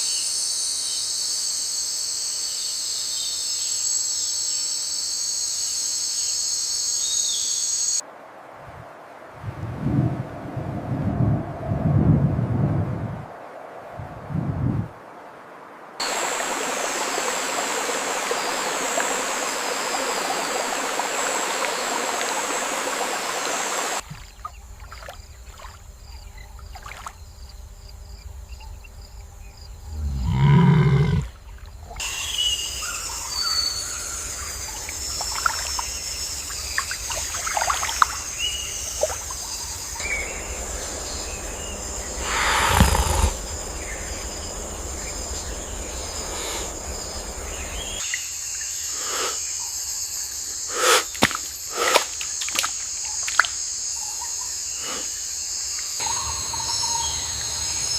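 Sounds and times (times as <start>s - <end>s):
running water rushing: 15.6s - 26.0s, 33.7s - 48.8s, 50.7s - 53.6s
high insect-like drone: 32.0s - 57.9s.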